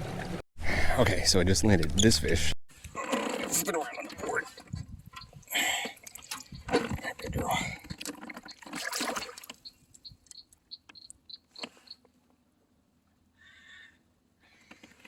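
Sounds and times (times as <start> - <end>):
water splashing and dripping: 3.5 - 11.2.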